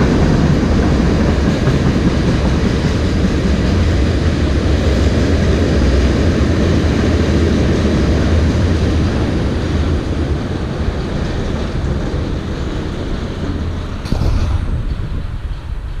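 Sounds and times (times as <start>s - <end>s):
train rumbling past: 0.0s - 16.0s
sharp knock: 14.0s - 15.3s.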